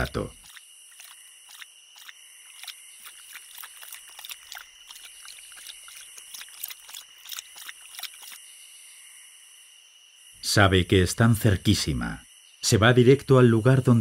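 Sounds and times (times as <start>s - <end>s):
night insects chirring: 0.0s - 14.0s
animal lapping water: 0.4s - 8.4s.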